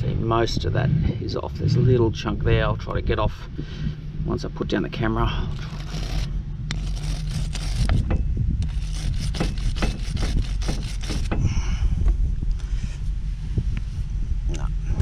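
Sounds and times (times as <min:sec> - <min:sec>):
hand tool scraping metal threads: 0:05.5 - 0:11.4.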